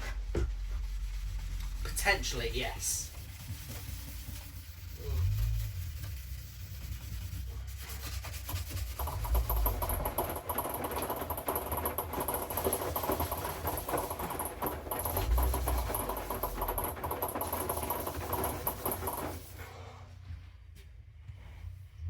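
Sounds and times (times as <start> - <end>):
washing machine drum tumbling: 8.4 - 19.6.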